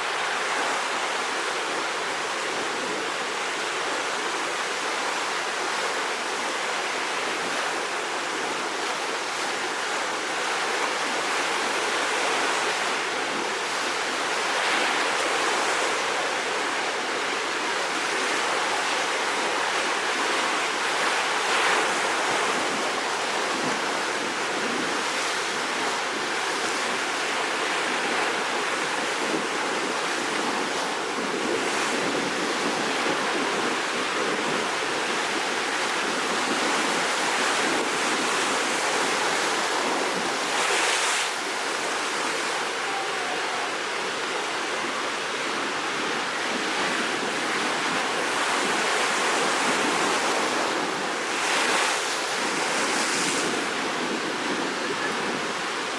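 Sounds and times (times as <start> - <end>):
rough sea waves breaking: 0.0 - 55.9.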